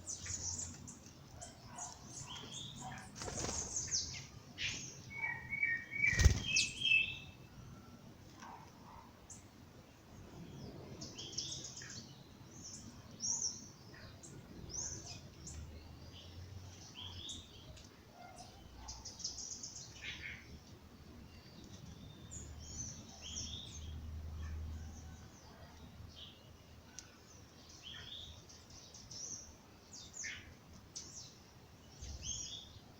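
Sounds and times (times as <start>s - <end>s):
songbirds chirping and singing: 0.0s - 32.9s.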